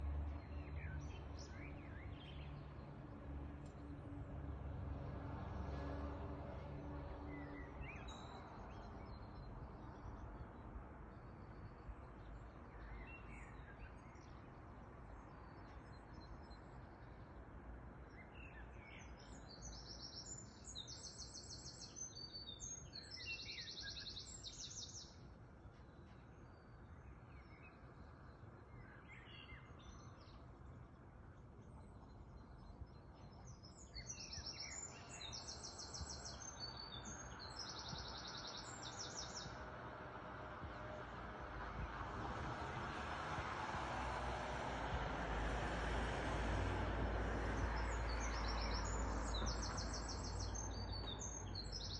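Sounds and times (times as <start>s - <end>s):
songbird singing trills: 31.7s - 39.6s, 47.8s - 51.9s.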